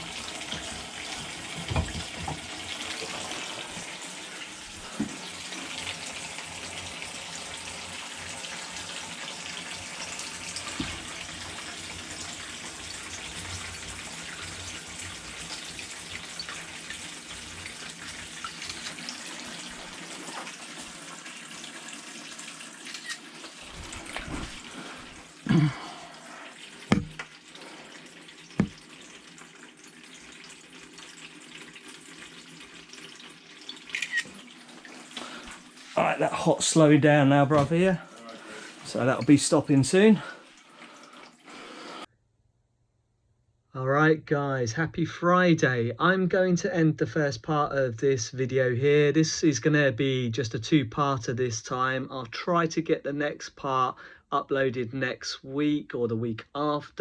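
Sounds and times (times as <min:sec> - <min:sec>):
tap running into a sink: 0:00.0 - 0:03.9, 0:04.8 - 0:07.1, 0:10.1 - 0:11.8, 0:22.8 - 0:24.6, 0:26.9 - 0:27.4, 0:28.5 - 0:29.1
sharp knocks: 0:26.9 - 0:27.2, 0:28.6 - 0:28.8.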